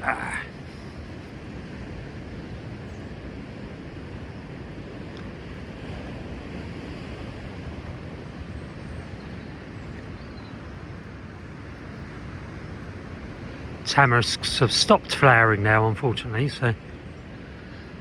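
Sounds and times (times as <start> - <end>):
sea surf breaking: 11.6 - 18.0.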